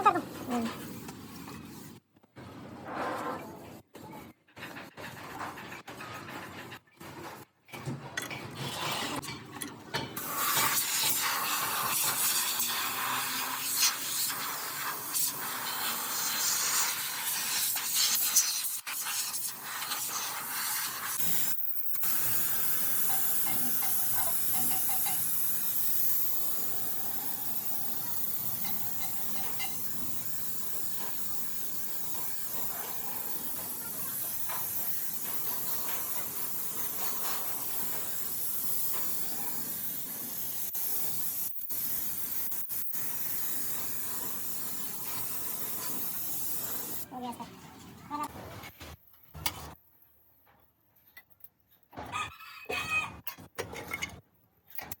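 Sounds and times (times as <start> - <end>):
spray hissing: 10.2 - 47.0.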